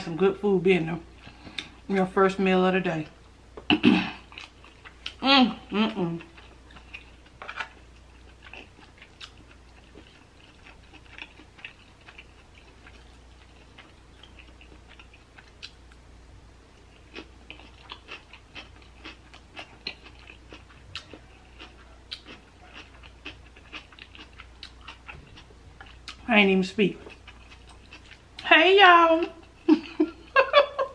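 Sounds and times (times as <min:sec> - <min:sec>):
steady low hum: 0:00.0 - 0:30.9
person chewing with lip smacks: 0:06.1 - 0:16.0, 0:17.0 - 0:26.2.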